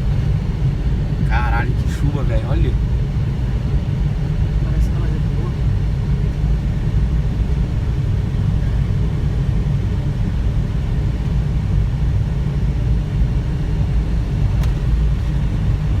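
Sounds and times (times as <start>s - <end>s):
airflow rumble in cockpit: 0.0s - 16.0s
faint click: 14.6s - 14.8s.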